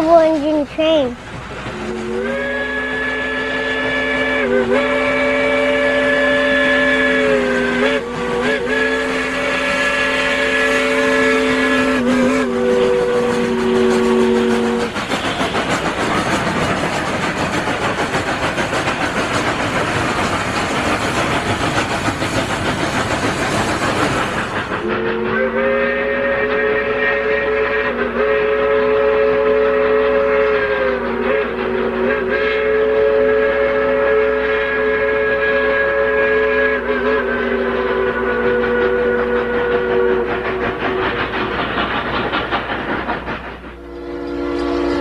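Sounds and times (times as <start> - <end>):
locomotive chuffing: 0.0 - 45.0
steam hiss: 0.0 - 45.0
steam locomotive chime whistle: 1.7 - 16.5, 24.7 - 41.6, 43.7 - 45.0.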